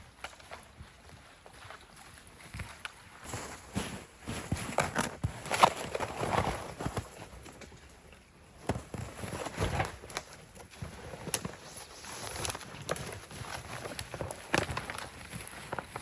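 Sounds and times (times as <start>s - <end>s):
footsteps crunching in deep snow: 3.2s - 7.3s.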